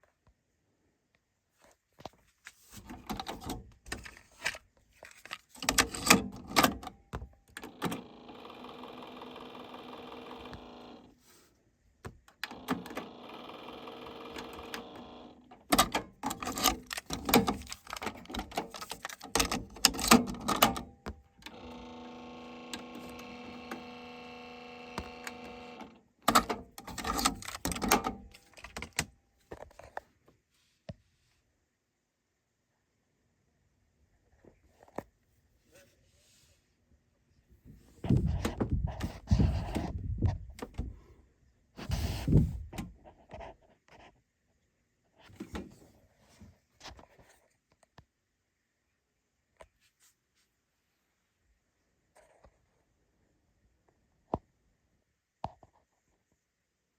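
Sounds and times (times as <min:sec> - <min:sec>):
cassette motor whirring: 0:07.5 - 0:11.2, 0:12.3 - 0:29.0
cassette deck buttons clicking: 0:24.9 - 0:29.1.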